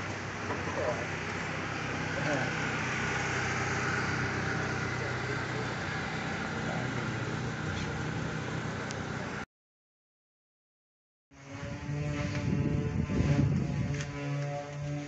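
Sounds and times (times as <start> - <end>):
car engine idling: 0.0 - 9.4.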